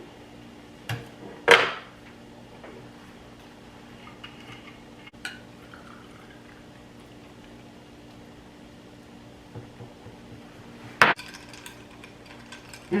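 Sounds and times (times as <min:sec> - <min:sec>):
drink pouring into glass: 0:05.2 - 0:07.6.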